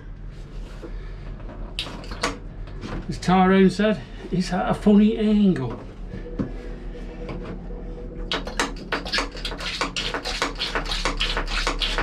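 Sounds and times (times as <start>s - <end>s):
hand pump strokes: 1.8s - 2.4s, 8.3s - 12.0s.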